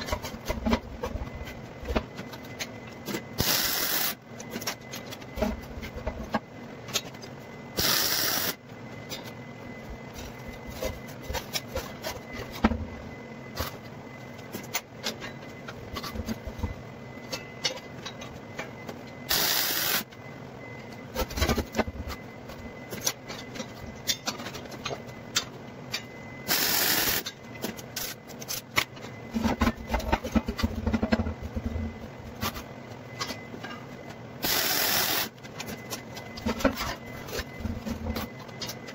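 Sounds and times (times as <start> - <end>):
arc welding crackle: 3.4 - 4.2, 7.8 - 8.6, 19.3 - 20.1, 26.5 - 27.3, 34.4 - 35.4.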